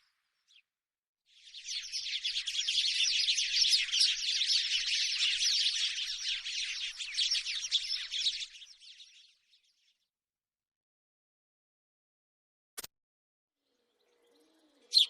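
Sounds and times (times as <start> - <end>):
sparrows chirping: 0.0 - 0.7, 1.4 - 10.0, 13.6 - 15.0.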